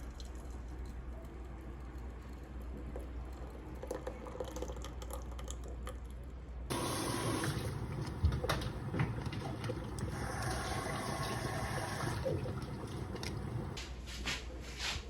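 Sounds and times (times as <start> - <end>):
liquid trickling: 3.0 - 5.8, 6.7 - 13.8
liquid rushing: 6.7 - 13.8.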